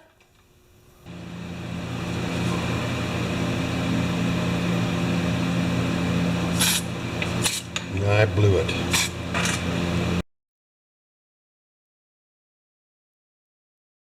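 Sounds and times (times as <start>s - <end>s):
air compressor motor humming: 1.0s - 10.2s
compressed air hissing: 6.5s - 7.7s.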